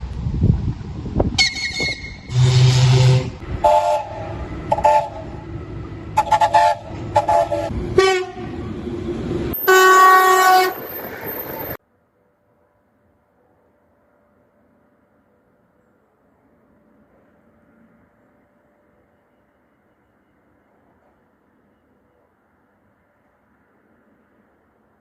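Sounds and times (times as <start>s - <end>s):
locomotive horn blasts: 1.4s - 8.6s, 9.5s - 10.9s.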